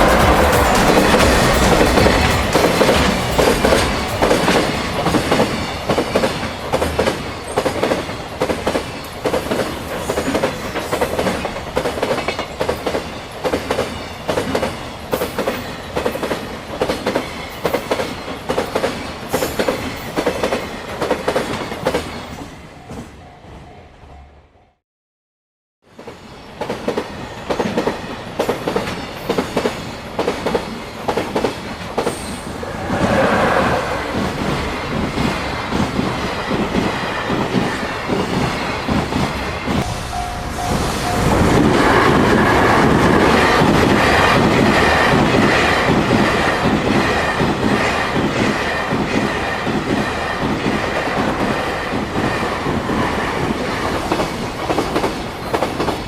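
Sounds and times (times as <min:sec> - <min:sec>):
train wheels clattering over rail joints: 0:00.0 - 0:22.1.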